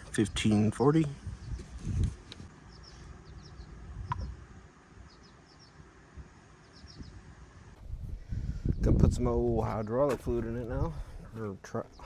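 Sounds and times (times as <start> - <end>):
faint bird chirps: 6.6 - 7.3.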